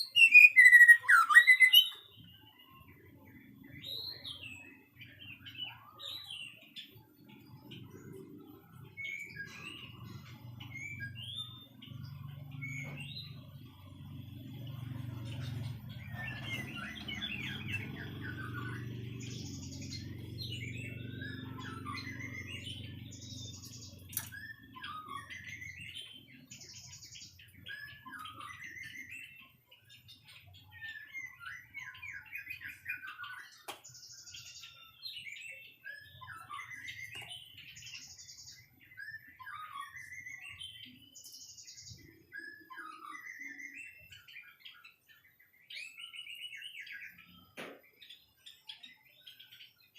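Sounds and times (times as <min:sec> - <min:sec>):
bird singing whistled phrases: 0:00.0 - 0:02.1, 0:42.0 - 0:44.9.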